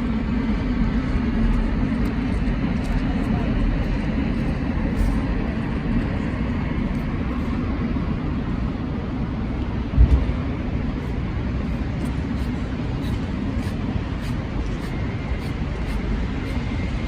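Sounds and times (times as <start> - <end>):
traffic rumble: 0.0 - 17.0
low thump: 10.0 - 10.4.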